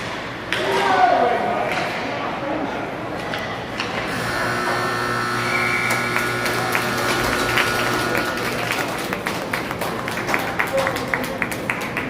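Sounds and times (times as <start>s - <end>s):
hockey sticks and puck clacking: 0.0s - 2.2s, 3.1s - 4.2s.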